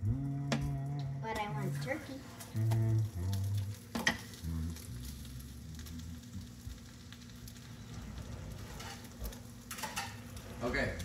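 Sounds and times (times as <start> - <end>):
omelet sizzling in a pan: 0.0 - 11.0.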